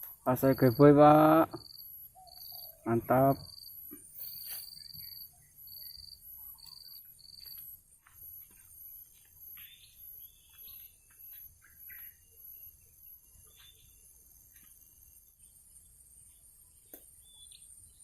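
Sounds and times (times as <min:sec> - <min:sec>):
birds chirping and calling: 0:00.0 - 0:07.6, 0:09.6 - 0:12.7.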